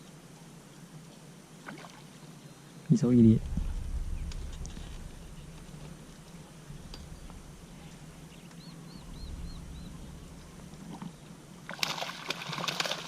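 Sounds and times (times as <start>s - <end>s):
steady low hum: 2.9s - 11.8s
bird whistling: 8.3s - 10.2s
water splashing: 9.0s - 13.0s.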